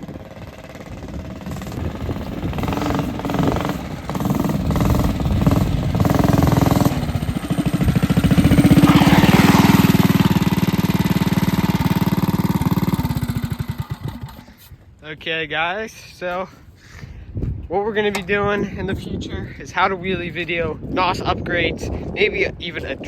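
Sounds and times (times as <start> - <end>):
small engine revving: 0.0 - 14.7.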